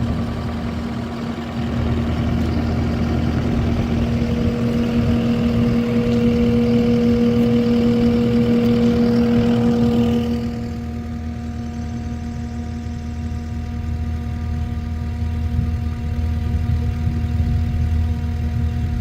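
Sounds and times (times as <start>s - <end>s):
high steady whine: 0.0s - 19.0s
large engine humming: 0.0s - 19.0s.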